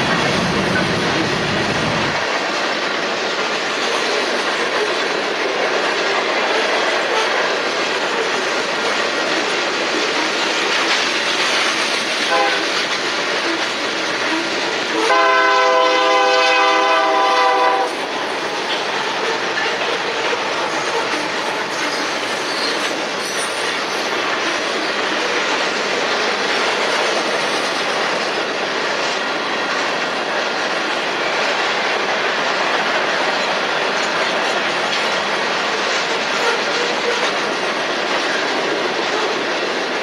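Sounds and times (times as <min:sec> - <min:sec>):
freight train cars rolling: 0:00.0 - 0:40.0
diesel locomotive horn: 0:12.3 - 0:12.8, 0:14.3 - 0:18.0, 0:36.4 - 0:37.4.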